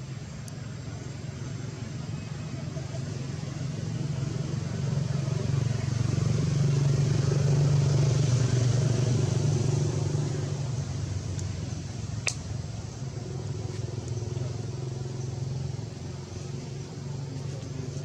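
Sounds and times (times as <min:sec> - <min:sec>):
vehicle engine droning: 0:00.0 - 0:18.0
sharp click: 0:12.2 - 0:12.5.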